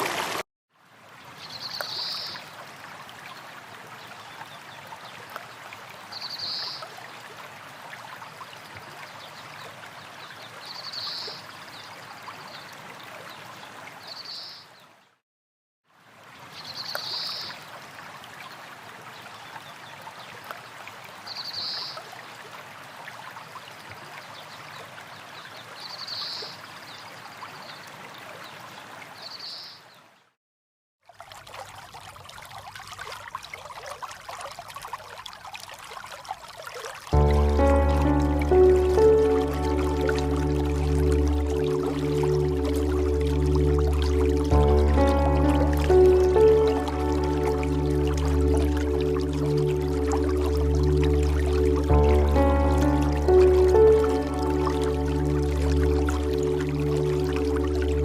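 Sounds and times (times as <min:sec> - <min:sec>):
running water: 0:00.0 - 0:14.5, 0:31.0 - 0:58.0.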